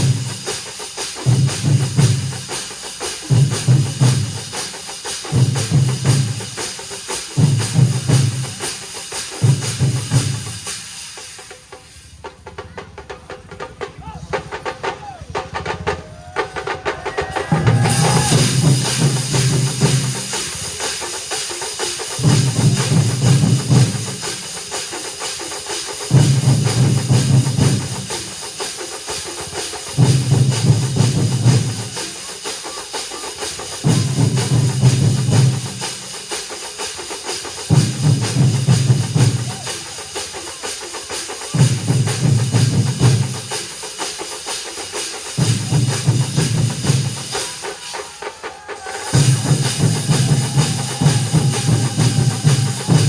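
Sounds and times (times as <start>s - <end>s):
heavy low drum strokes: 0.0s - 32.7s, 49.0s - 53.0s
drum ensemble playing: 0.0s - 53.0s.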